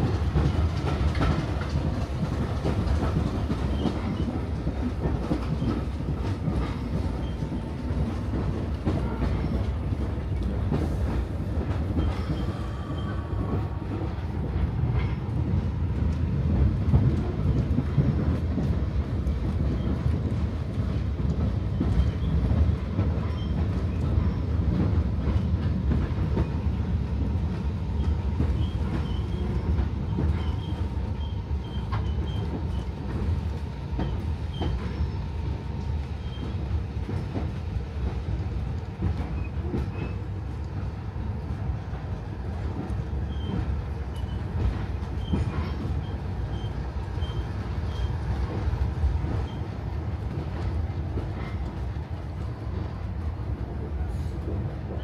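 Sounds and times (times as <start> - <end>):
train rumble from inside carriage: 0.0 - 55.0.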